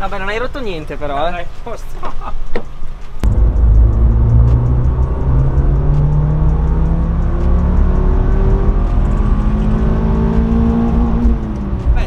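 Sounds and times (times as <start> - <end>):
car engine accelerating: 3.2 - 12.0.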